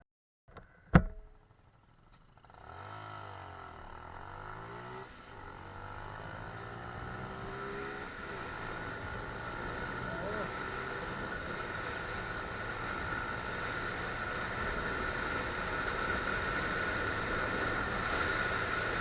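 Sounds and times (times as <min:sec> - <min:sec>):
motorcycle engine accelerating: 0:00.6 - 0:19.0
sharp knock: 0:00.9 - 0:01.4.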